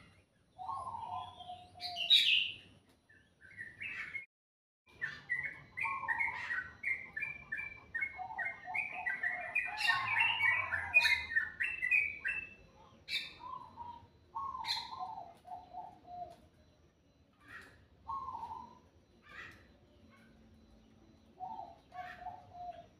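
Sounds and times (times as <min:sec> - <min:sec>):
sharp high bird calls: 0:00.0 - 0:02.7, 0:04.9 - 0:22.9
songbirds chirping: 0:00.0 - 0:04.3, 0:04.9 - 0:22.9.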